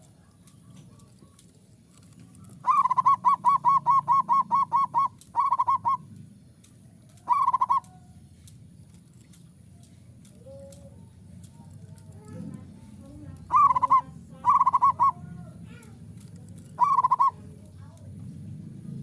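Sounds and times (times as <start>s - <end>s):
dove cooing: 0.2s - 6.2s, 7.1s - 8.1s, 13.4s - 15.5s, 16.4s - 17.7s.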